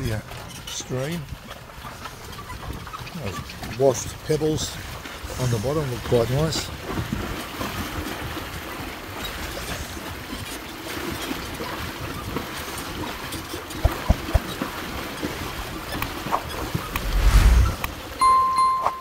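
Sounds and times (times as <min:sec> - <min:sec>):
water splashing and sloshing: 0:00.0 - 0:19.0
dull knocks: 0:13.8 - 0:14.5.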